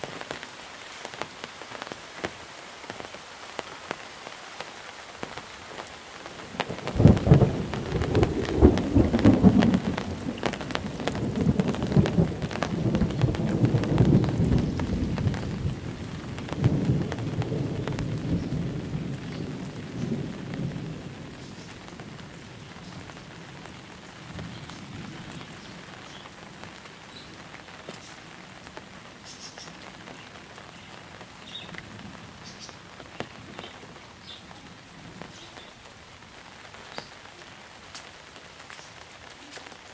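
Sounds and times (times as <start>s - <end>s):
heavy rain falling: 0.0s - 39.9s
thunder rumbling: 6.3s - 26.2s.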